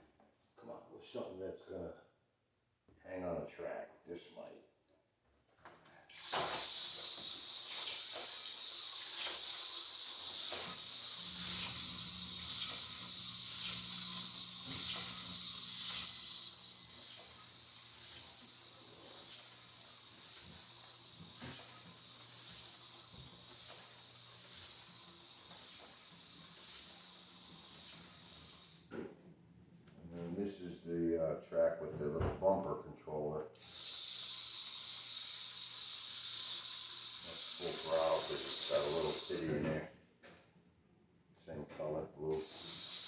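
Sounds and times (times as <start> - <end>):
slot car motor hissing: 6.1 - 28.9, 33.6 - 39.5, 42.4 - 43.0.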